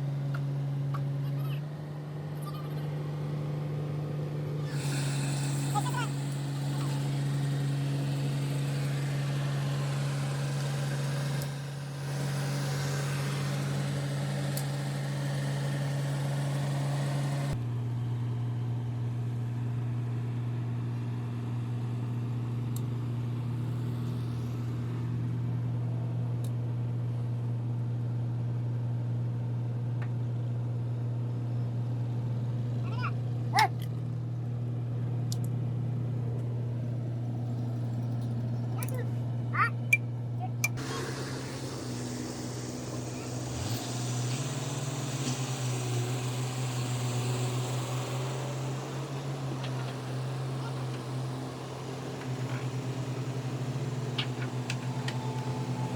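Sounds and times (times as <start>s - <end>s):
motor humming: 4.4s - 17.6s, 36.4s - 55.9s.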